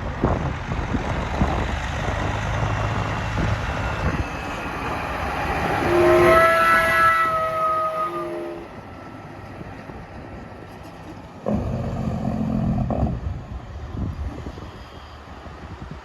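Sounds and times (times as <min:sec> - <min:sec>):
heavy vehicle rumble: 0:00.0 - 0:16.0
air horn chord: 0:04.0 - 0:08.7.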